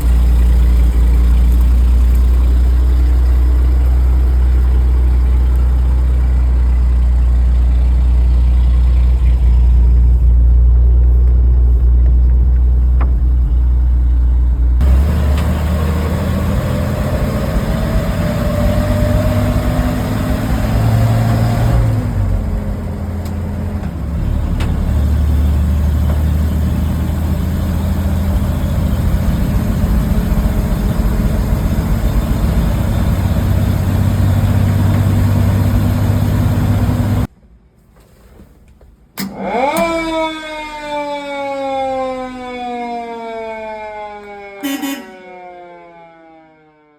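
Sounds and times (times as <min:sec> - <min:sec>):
truck engine idling: 0:00.0 - 0:37.3.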